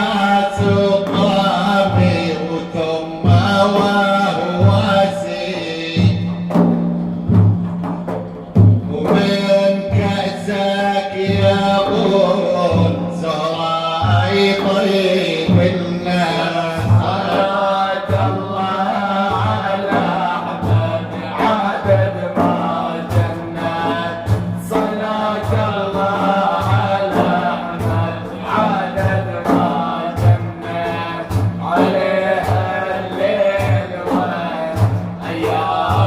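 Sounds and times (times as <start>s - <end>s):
men chanting: 0.0s - 6.7s, 8.8s - 36.0s
steady drum beat: 0.0s - 36.0s.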